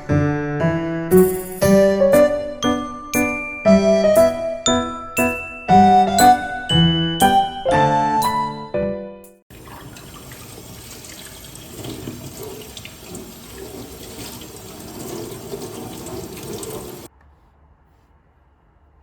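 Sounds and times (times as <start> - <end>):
tap water running into sink: 9.5 - 17.1.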